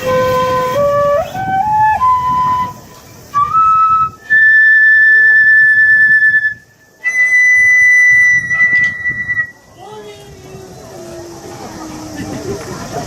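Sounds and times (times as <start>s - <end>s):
whistle-like melody: 0.0s - 9.6s.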